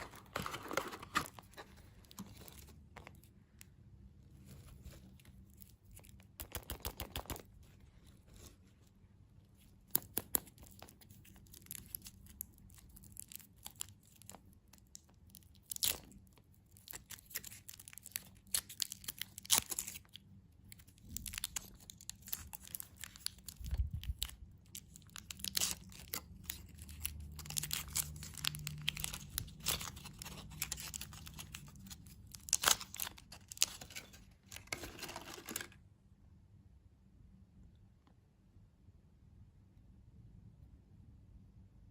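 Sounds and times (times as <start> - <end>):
packaging crunches: 0.0 - 3.3, 20.8 - 35.8
candy wrappers crinkling and tearing: 0.0 - 3.7, 4.4 - 8.6, 9.6 - 35.8.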